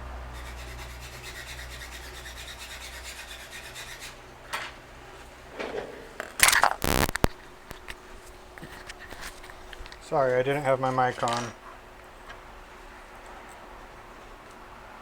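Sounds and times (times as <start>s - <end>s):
circuit board rubbing on paper: 6.8s - 7.3s.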